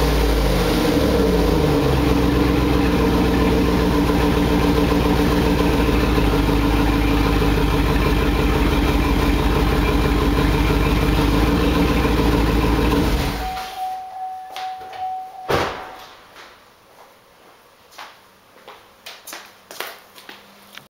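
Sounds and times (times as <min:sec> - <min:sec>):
loud engine idling: 0:00.0 - 0:13.9
short steady beep: 0:13.4 - 0:16.0
sharp thump: 0:15.5 - 0:16.3.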